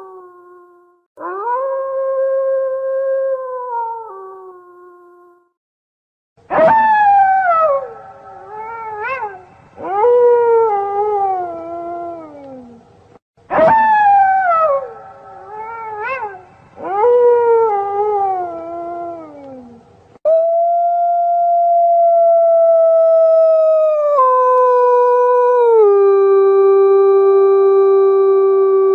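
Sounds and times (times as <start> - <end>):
wolf howling: 6.5 - 12.8, 13.5 - 28.9.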